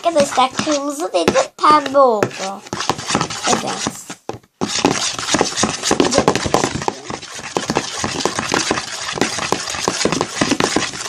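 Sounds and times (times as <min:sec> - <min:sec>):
spoon stirring slime: 0:00.0 - 0:11.0.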